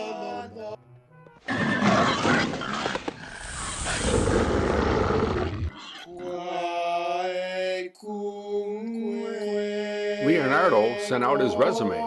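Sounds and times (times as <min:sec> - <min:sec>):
sustained chant-like chords: 0:06.1 - 0:12.0.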